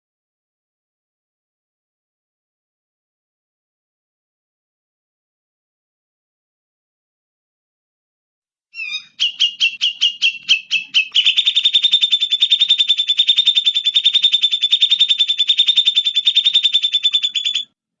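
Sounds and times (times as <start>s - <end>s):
songbird singing: 8.8s - 17.8s.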